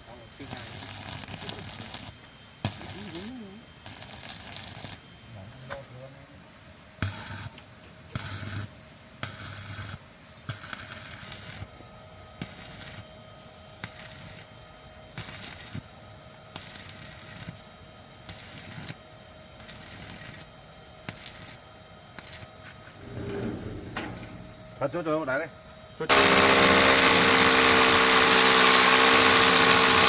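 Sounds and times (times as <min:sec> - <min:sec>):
short bursts of clattering: 0:23.0 - 0:25.0.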